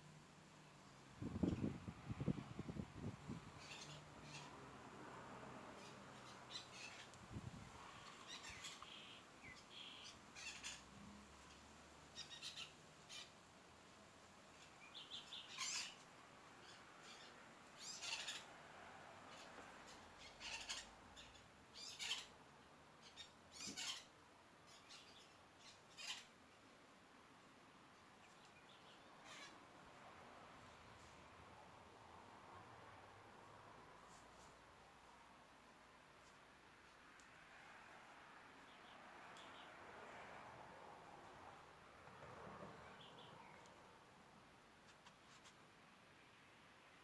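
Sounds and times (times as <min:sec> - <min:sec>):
faint bird chirps and squawks: 0:02.3 - 0:04.7, 0:05.8 - 0:13.4, 0:14.5 - 0:18.6, 0:19.3 - 0:22.4, 0:23.0 - 0:26.4, 0:28.2 - 0:29.7.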